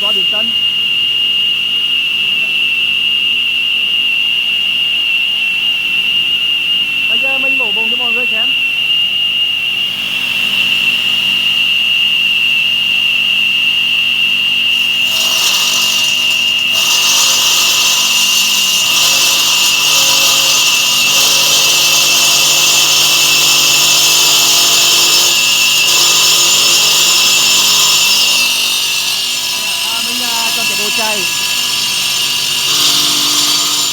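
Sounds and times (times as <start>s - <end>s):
stone saw blade whine: 0.0s - 0.9s, 14.1s - 33.9s
blade grinding stone: 14.8s - 33.9s.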